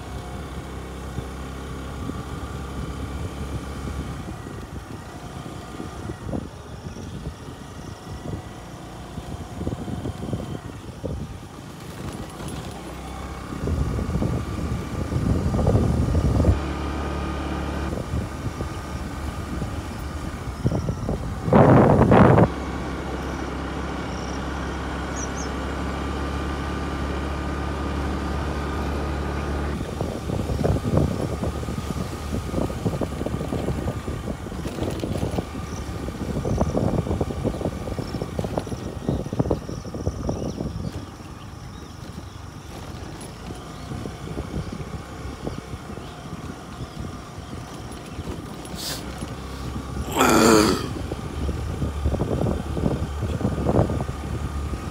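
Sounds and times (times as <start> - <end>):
vehicle engine drone: 0.0 - 54.9
vehicle bumps and rattles: 9.1 - 16.6, 29.8 - 44.9, 45.6 - 50.0.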